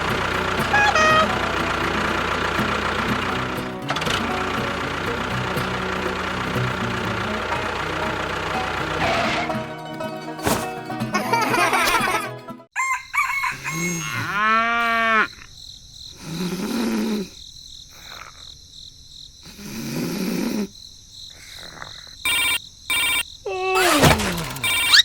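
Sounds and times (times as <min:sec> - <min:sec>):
animal calls: 0:00.6 - 0:01.5, 0:12.9 - 0:15.5, 0:21.4 - 0:25.0
short high tones: 0:00.6 - 0:01.7, 0:22.3 - 0:23.2, 0:24.6 - 0:25.0
rough animal calls: 0:13.0 - 0:15.6, 0:21.3 - 0:25.0.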